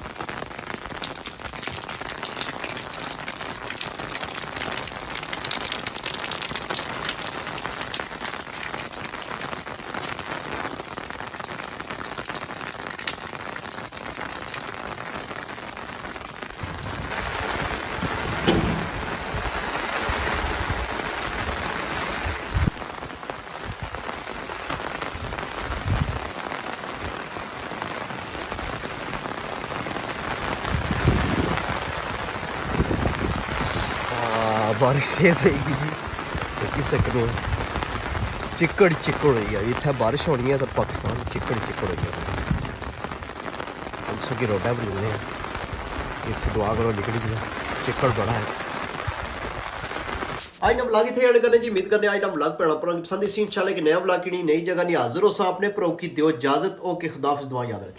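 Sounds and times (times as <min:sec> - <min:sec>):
heavy rain: 0:00.0 - 0:55.5
short thumps: 0:18.2 - 0:19.6.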